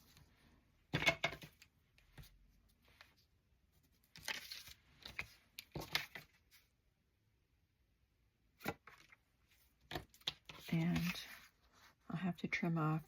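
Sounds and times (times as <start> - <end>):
paper rustling: 1.4 - 6.7, 8.6 - 12.0.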